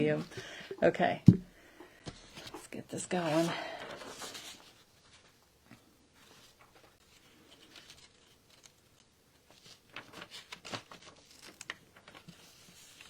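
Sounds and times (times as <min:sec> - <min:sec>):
paper rustling: 0:02.1 - 0:05.4, 0:06.2 - 0:13.0.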